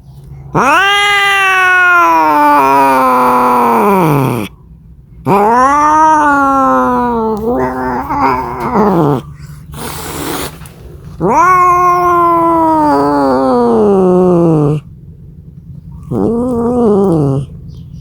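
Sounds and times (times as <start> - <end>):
cat yowling: 0.5 - 4.5, 5.3 - 10.6, 11.2 - 14.9, 16.0 - 17.6.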